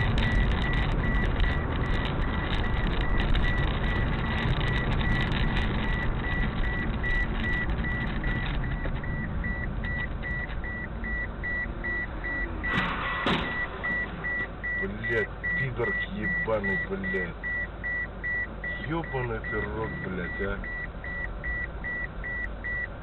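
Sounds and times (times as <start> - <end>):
car road and engine noise: 0.0 - 23.0
electronic warning beeps: 4.7 - 12.8, 13.5 - 22.9.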